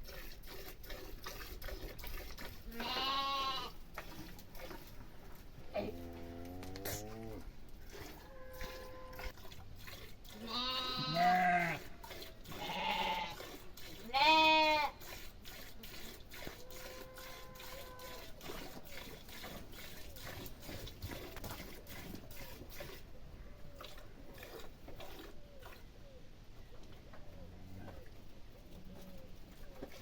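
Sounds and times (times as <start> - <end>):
livestock bleating: 2.7 - 3.8, 10.4 - 11.8, 12.5 - 13.4, 14.1 - 15.0.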